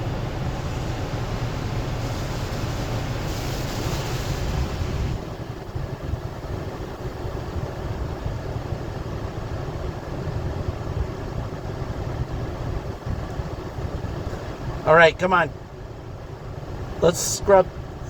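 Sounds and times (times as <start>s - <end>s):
spraying water hiss: 0.0s - 7.8s, 17.0s - 17.6s
car wash machinery rumble: 0.0s - 18.0s.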